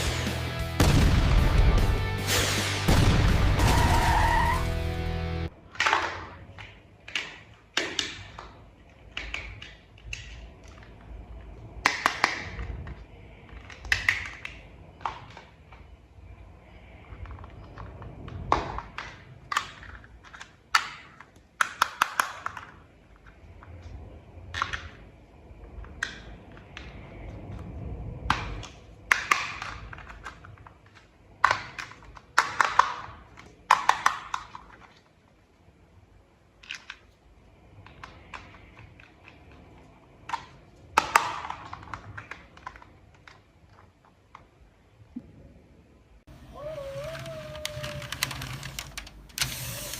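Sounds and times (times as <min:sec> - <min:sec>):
toy parts clicking and tapping: 0:11.8 - 0:15.8, 0:17.2 - 0:23.4, 0:47.0 - 0:49.9.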